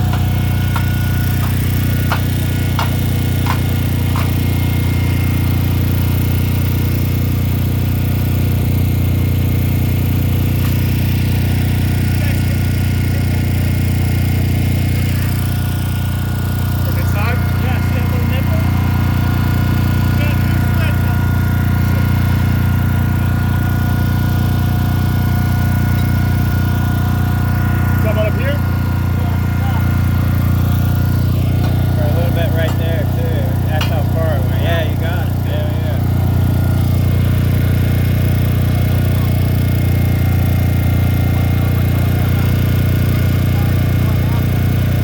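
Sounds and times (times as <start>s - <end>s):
core drill motor cutting masonry: 0.0s - 45.0s
machinery droning: 0.0s - 45.0s.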